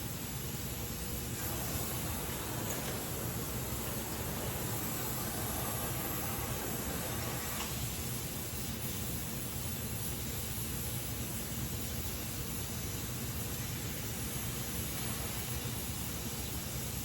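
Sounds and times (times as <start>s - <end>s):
welding torch flame hissing: 0.1s - 17.0s.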